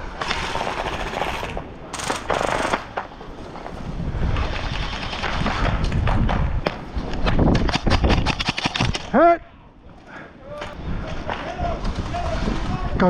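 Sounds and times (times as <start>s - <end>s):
airsoft guns firing bursts: 0.2s - 3.2s.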